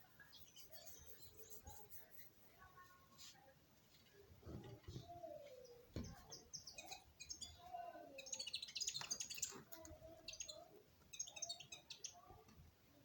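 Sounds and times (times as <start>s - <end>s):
bird chirping: 0.0s - 2.2s, 4.9s - 12.4s.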